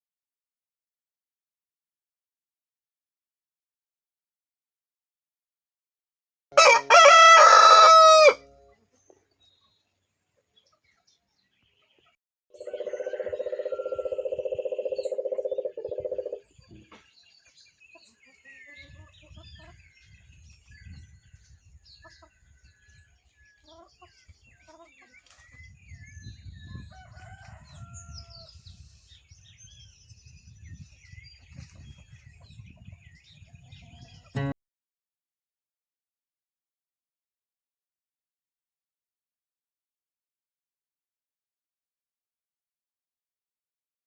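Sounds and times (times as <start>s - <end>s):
rooster crowing: 6.6s - 8.5s, 12.6s - 14.4s, 26.9s - 28.4s
small birds chirping: 8.7s - 34.5s.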